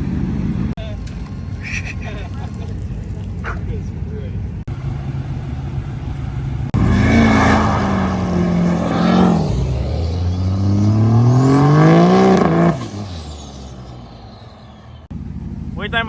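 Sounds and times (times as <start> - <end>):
vehicle engine revving: 4.5 - 16.0.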